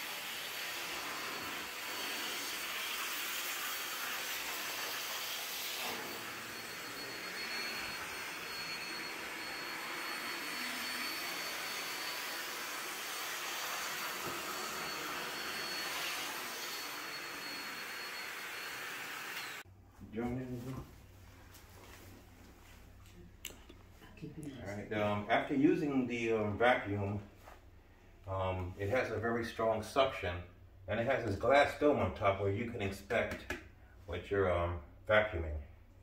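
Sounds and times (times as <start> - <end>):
backpack vacuum running: 0.0 - 19.6.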